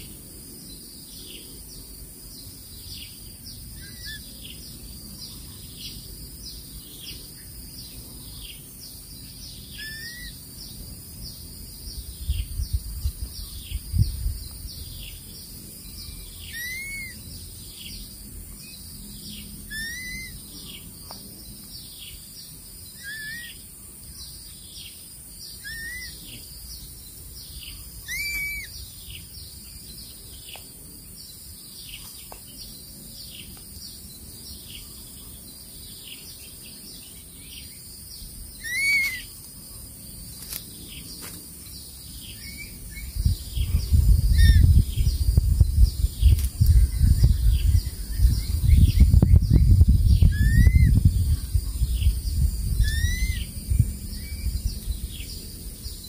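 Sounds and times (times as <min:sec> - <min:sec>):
bird whistle: 0:03.8 - 0:04.3, 0:09.8 - 0:10.4, 0:16.4 - 0:17.2, 0:19.7 - 0:20.4, 0:23.0 - 0:23.6, 0:25.6 - 0:26.2, 0:28.0 - 0:28.8, 0:38.6 - 0:39.3, 0:50.2 - 0:51.0, 0:52.8 - 0:53.5
bird high falling call: 0:28.1 - 0:28.8.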